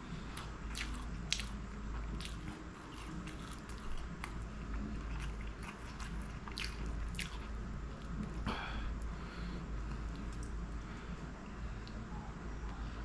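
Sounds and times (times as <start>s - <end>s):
chewing food: 0.1s - 9.1s, 9.8s - 10.8s.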